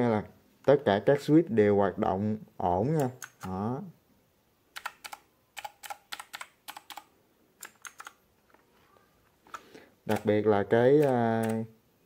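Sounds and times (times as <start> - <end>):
mechanical keyboard clicks: 3.0 - 3.6, 4.8 - 8.2, 10.1 - 10.4, 11.0 - 11.6.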